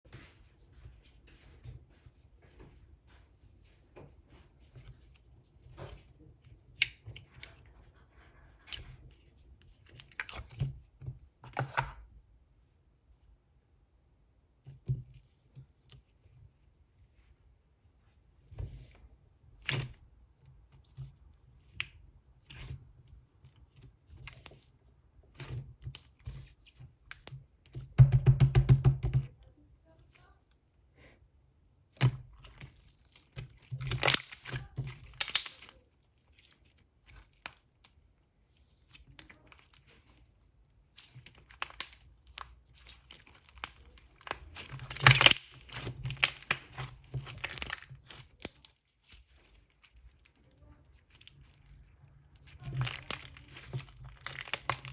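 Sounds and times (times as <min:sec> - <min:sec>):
handling clicks and crinkles: 0:32.0 - 0:54.9.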